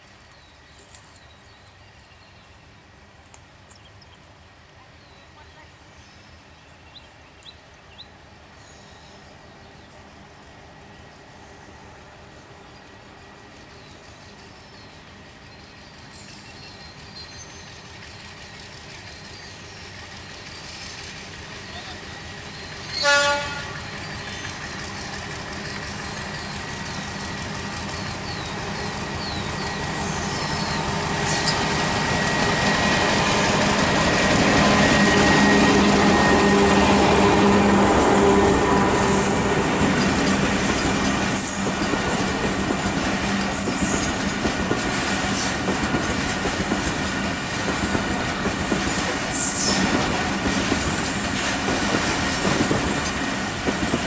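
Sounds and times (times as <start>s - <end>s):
locomotive engine passing: 9.3s - 54.0s
locomotive horn blast: 22.9s - 23.9s
wheels clattering over rail joints: 39.6s - 54.0s.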